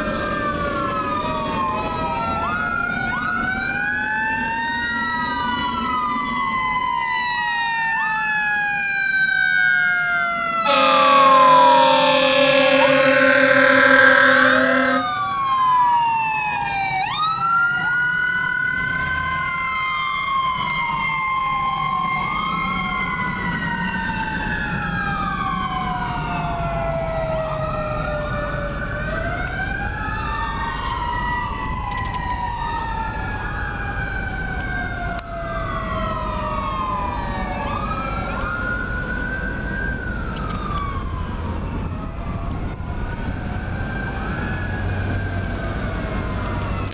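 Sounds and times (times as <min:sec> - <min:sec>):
fire truck sirens wailing: 0:00.0 - 0:46.9
low rumble of trucks: 0:00.0 - 0:46.9
air horn blast: 0:10.6 - 0:15.1.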